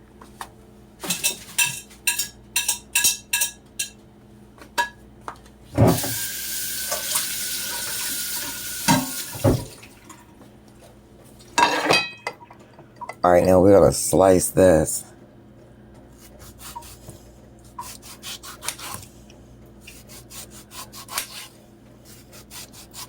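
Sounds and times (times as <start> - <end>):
dishes and utensils clinking: 1.0 - 4.0, 11.6 - 13.2
tap running into sink: 6.9 - 9.8.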